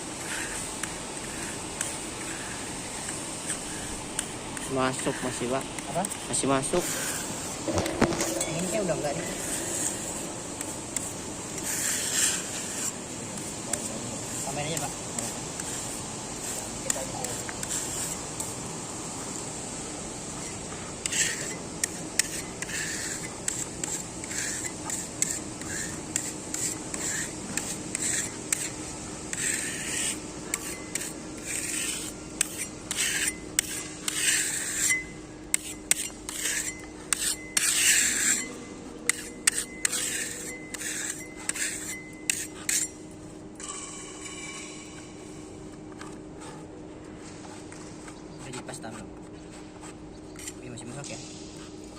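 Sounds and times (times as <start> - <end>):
hand tool scraping concrete: 0.2 - 18.6, 20.3 - 43.0.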